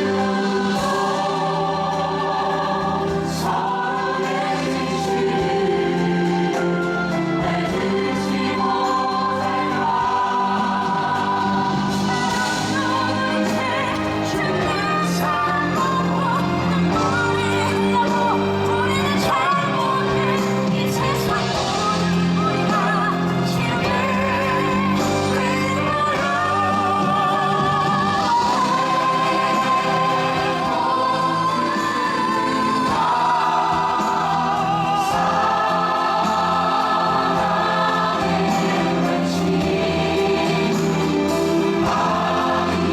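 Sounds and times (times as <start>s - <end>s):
musical accompaniment: 0.0s - 42.9s
voices singing together: 0.0s - 42.9s.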